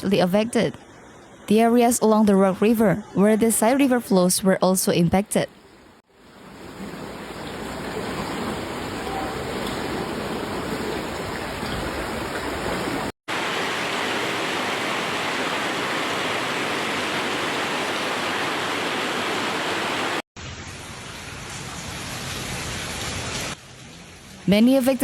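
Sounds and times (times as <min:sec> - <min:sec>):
floodwater rushing: 0:06.1 - 0:20.2.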